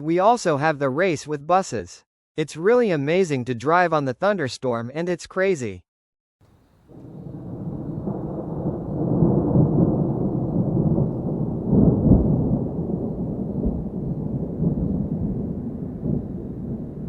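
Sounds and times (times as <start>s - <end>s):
rain: 6.5s - 17.0s
thunder rumbling: 6.8s - 17.0s.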